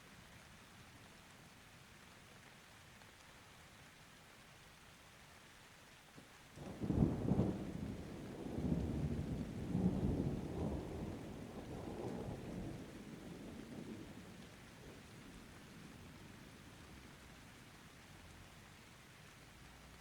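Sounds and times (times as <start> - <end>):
light rain: 0.0 - 20.0
rolling thunder: 6.8 - 14.2.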